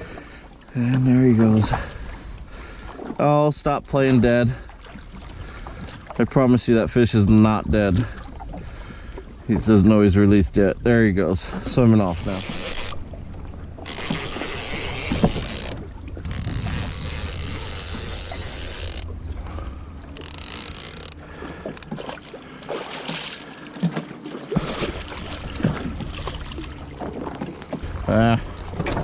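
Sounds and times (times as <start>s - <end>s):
water sloshing against jet ski: 0.0s - 29.0s
steady rumble: 6.5s - 23.9s, 24.5s - 29.0s.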